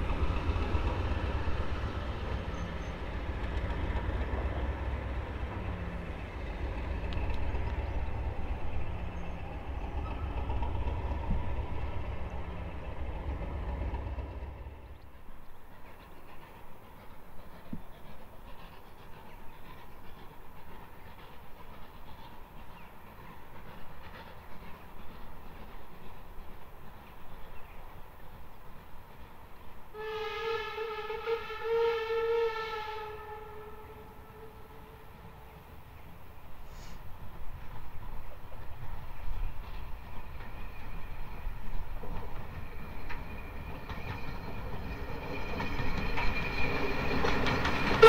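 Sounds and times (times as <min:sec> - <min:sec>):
train rumbling past: 0:00.0 - 0:48.0.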